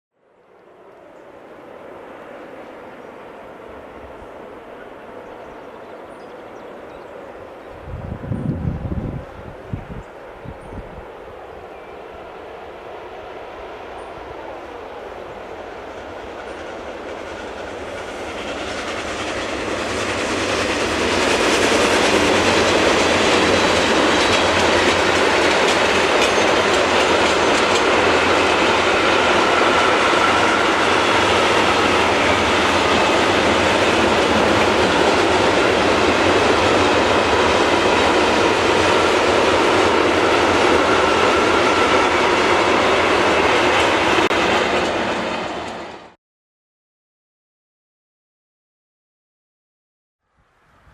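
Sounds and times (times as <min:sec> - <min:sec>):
freight train passing: 0:00.2 - 0:46.2
wagons rumbling over rails: 0:11.4 - 0:46.2.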